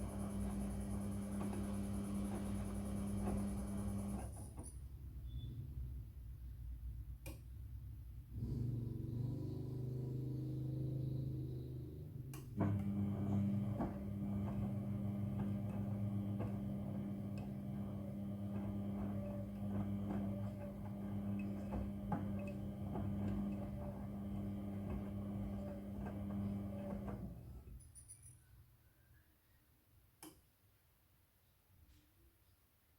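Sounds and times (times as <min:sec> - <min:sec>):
washing machine humming: 0:00.0 - 0:04.6, 0:08.5 - 0:27.7.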